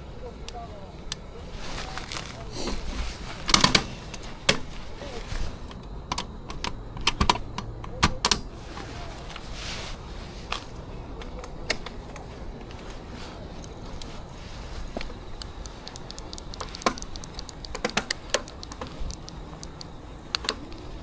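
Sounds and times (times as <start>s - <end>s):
low background hum: 0.0s - 21.0s
sharp clicks and taps: 15.0s - 20.9s.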